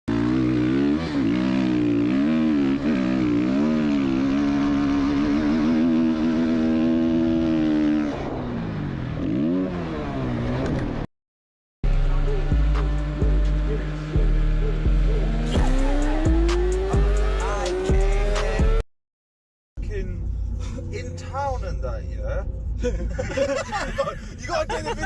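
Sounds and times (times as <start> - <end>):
motorcycle engine revving: 0.1 - 11.1, 11.8 - 18.8.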